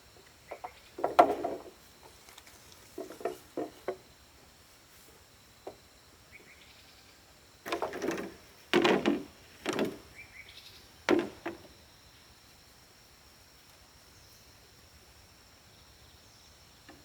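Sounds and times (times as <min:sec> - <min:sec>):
insects buzzing: 0:00.0 - 0:17.0
wooden boards clattering: 0:00.5 - 0:01.8, 0:02.9 - 0:04.0, 0:07.7 - 0:10.2, 0:11.0 - 0:11.7.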